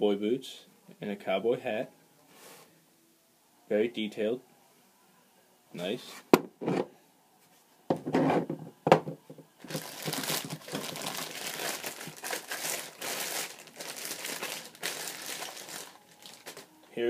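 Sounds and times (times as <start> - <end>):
newspaper crinkling: 9.6 - 16.7.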